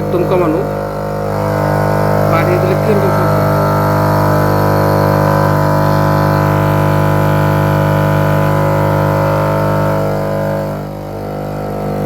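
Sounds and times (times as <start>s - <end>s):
compressor droning hum: 0.0s - 12.0s.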